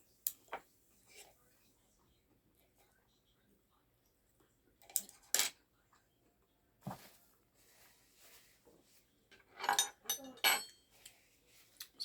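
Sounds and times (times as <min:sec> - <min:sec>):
metal spoon clinking on plate: 0:09.6 - 0:10.9.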